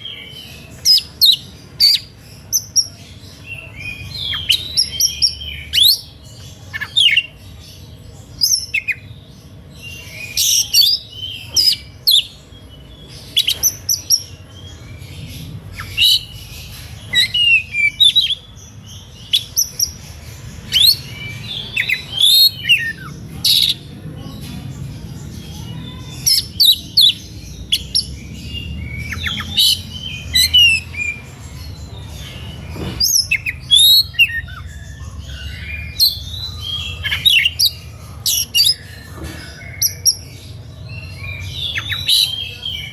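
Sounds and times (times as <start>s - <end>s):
bird singing whistles and chirps: 20.6s - 23.8s, 32.4s - 40.3s.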